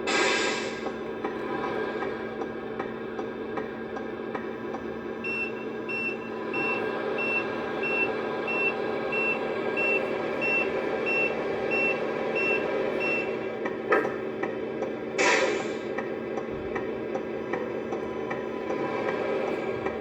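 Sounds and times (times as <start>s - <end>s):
low engine-like hum: 0.0s - 20.0s
reversing alarm beeping: 5.2s - 13.5s.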